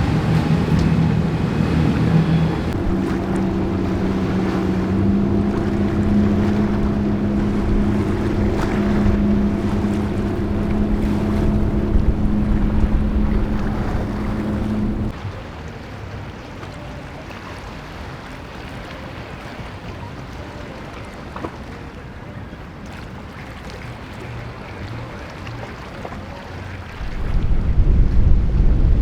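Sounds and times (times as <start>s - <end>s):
breaking surf: 0.0s - 15.4s
wind on microphone: 0.0s - 15.4s, 27.0s - 29.0s
motorboat engines running: 0.0s - 22.0s, 23.8s - 29.0s.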